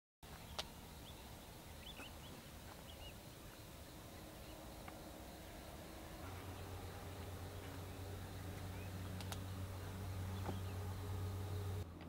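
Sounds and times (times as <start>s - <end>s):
low rumbling hiss: 0.2s - 12.0s.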